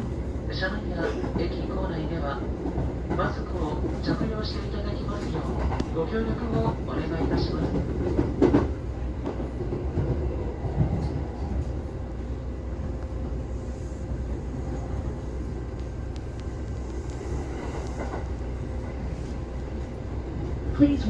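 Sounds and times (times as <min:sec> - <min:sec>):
train rumble inside carriage: 0:00.0 - 0:21.0.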